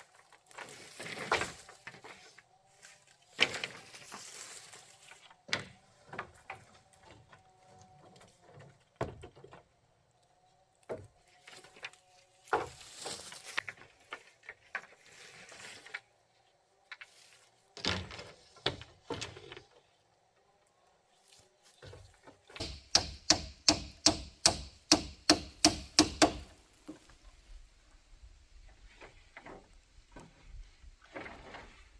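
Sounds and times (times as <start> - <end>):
tool knocking on wood: 22.6 - 26.6.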